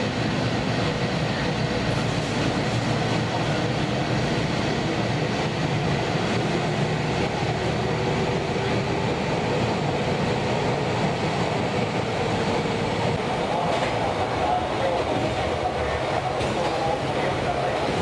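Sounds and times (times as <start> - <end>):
train motors and wheels rumbling: 0.0 - 18.0.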